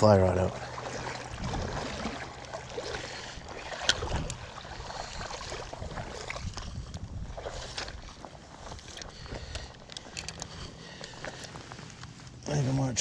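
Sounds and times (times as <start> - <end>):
water: 0.0 - 13.0
wind: 0.0 - 13.0
fishing gear clicking and knocking: 8.6 - 12.2.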